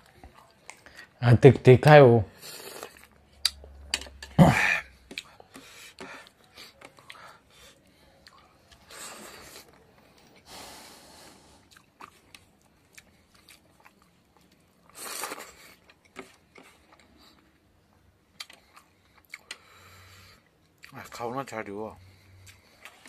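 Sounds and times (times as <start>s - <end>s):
man chewing wetly: 2.5s - 3.7s, 4.8s - 10.4s, 11.6s - 21.0s, 22.1s - 23.0s.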